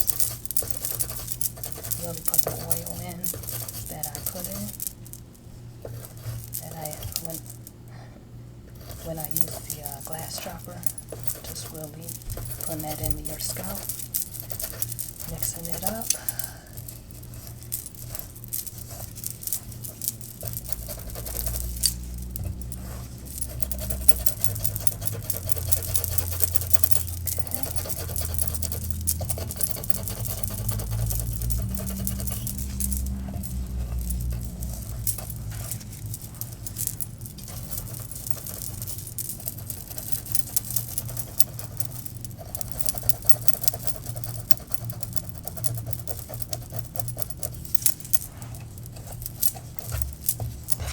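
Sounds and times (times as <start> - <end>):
hair rustling under fingers: 9.0 - 50.9.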